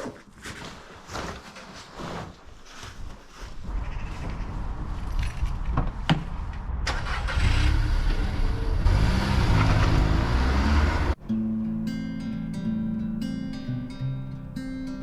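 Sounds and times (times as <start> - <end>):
car engine running: 7.9 - 11.2.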